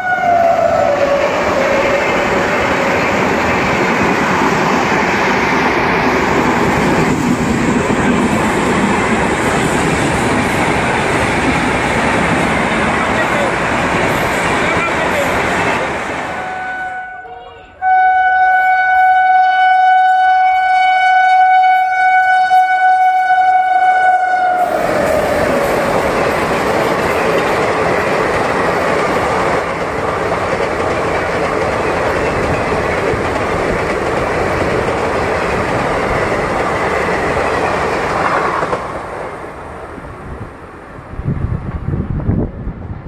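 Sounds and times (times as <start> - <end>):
locomotive horn: 0.0 - 2.3, 16.3 - 25.0
train coaches rushing past: 0.0 - 19.2, 21.6 - 43.0.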